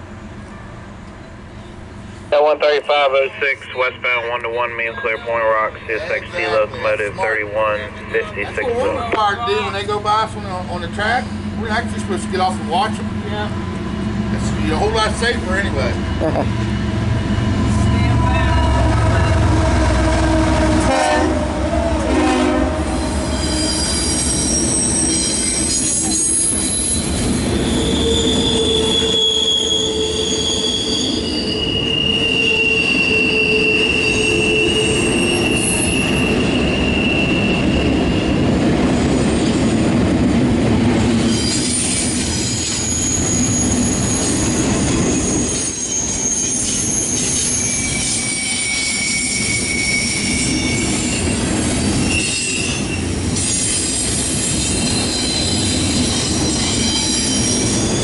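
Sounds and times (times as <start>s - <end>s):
train wheels rumbling on rail: 0.0s - 58.0s
high-pitched wheel squeals: 22.3s - 38.4s, 41.2s - 58.0s.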